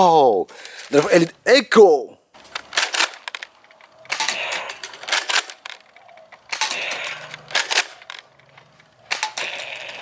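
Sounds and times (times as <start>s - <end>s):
plastic toy blasters clicking: 2.5s - 10.0s.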